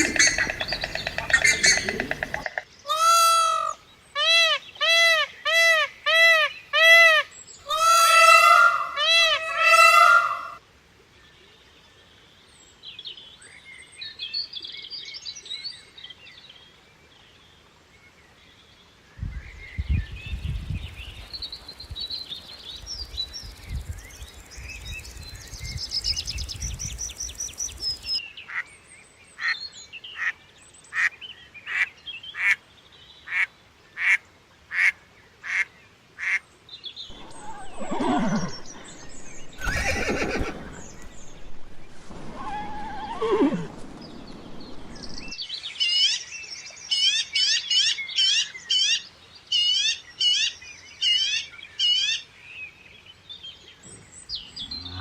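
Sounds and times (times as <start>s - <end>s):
short animal calls: 37.1s - 43.9s
horse whinnying: 37.1s - 45.0s.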